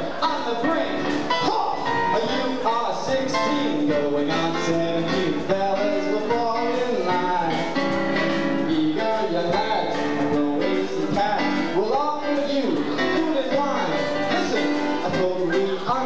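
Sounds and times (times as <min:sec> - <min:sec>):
person singing: 0:00.0 - 0:16.0
stage musical accompaniment: 0:00.0 - 0:16.0.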